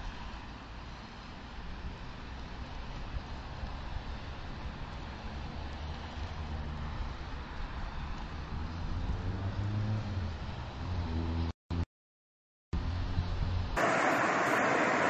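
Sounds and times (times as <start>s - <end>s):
road noise inside car: 0.0s - 11.5s, 12.8s - 15.0s
car engine: 13.6s - 15.0s.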